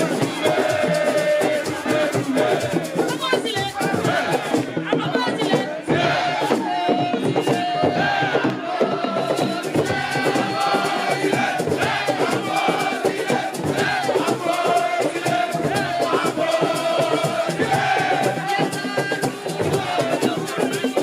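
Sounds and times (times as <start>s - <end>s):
crowd singing and chanting: 0.0s - 21.0s
music with percussion and rattles: 0.0s - 21.0s.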